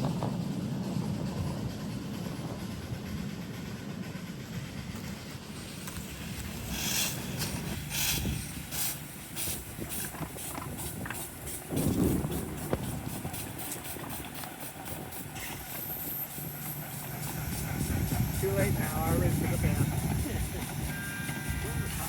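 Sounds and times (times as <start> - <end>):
low rumble of running train: 0.0 - 22.0
steam exhaust chuffs: 0.0 - 22.0.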